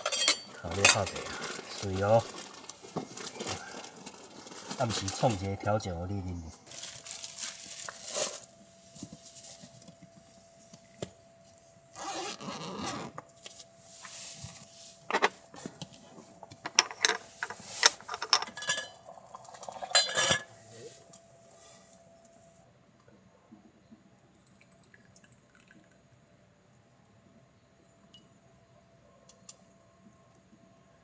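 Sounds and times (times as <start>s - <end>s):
metal cookware clinking: 0.0s - 1.1s, 17.9s - 20.6s.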